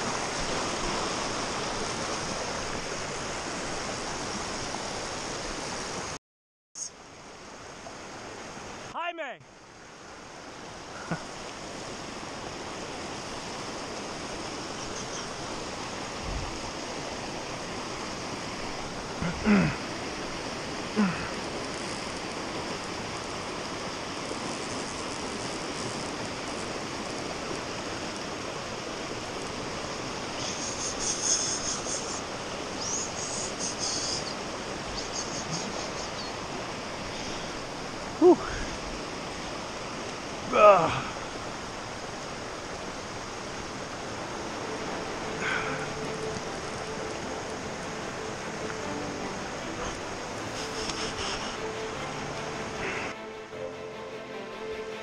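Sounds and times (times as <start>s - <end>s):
creek water rushing over rocks: 0.0s - 6.2s, 6.8s - 55.0s
short voice sounds: 49.8s - 51.6s.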